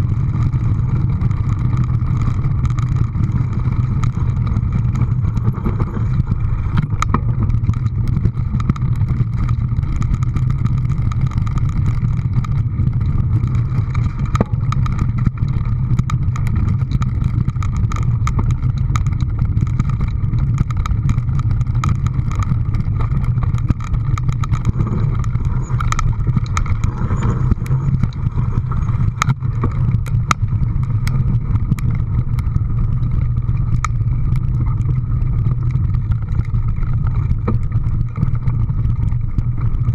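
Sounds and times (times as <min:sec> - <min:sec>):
low engine rumble: 0:00.0 - 0:39.9
sharp clicks and rattles: 0:00.0 - 0:39.9.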